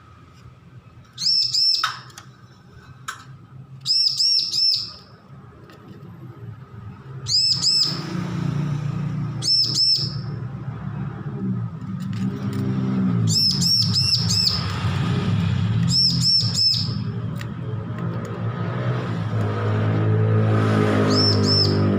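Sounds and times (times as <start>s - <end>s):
bird chirping high notes: 1.2s - 2.1s, 3.8s - 5.2s, 7.2s - 8.1s, 9.4s - 10.4s, 13.2s - 14.7s, 15.8s - 17.2s, 21.0s - 21.9s.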